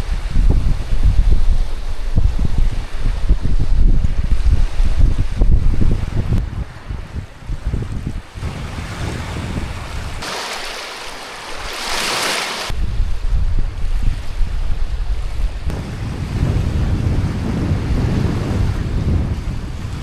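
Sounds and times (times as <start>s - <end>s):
wind buffeting microphone: 0.0s - 10.3s, 12.7s - 20.0s
waves washing on shore: 0.0s - 12.8s.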